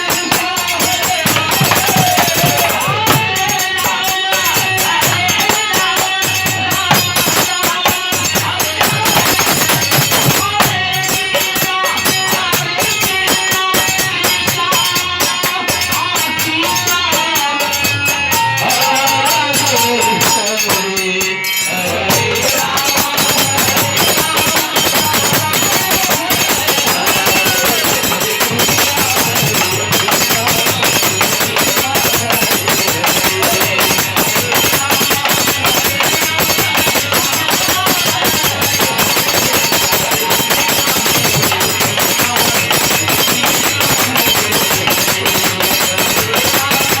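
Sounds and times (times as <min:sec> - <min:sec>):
jingling percussion: 0:00.0 - 0:47.0
person singing melody: 0:18.3 - 0:47.0.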